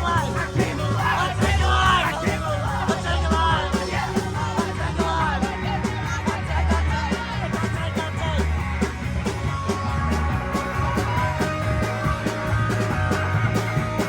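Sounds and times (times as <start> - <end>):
bass line: 0.0 - 14.0
live rock band playing: 0.0 - 14.0
drum kit hitting: 7.6 - 14.0.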